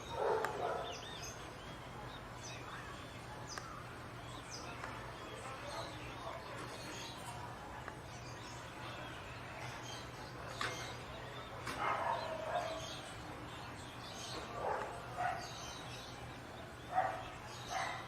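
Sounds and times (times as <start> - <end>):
dog barking: 0.1 - 1.0, 11.8 - 12.8, 14.5 - 15.6, 16.9 - 18.0.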